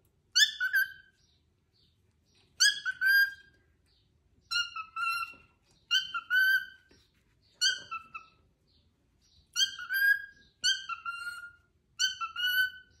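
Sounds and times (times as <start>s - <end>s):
cockatiel calling: 0.3s - 1.2s, 2.6s - 3.6s, 4.5s - 6.9s, 7.6s - 8.5s, 9.5s - 13.0s.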